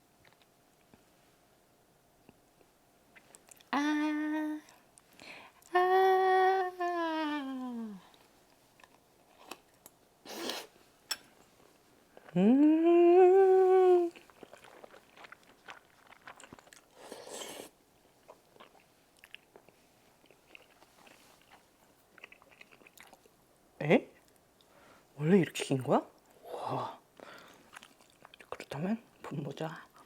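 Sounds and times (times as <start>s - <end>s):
person chewing: 0.2s - 1.0s, 13.7s - 23.3s, 27.2s - 28.7s
person humming mmm: 3.5s - 4.8s, 5.6s - 8.2s, 12.2s - 14.2s.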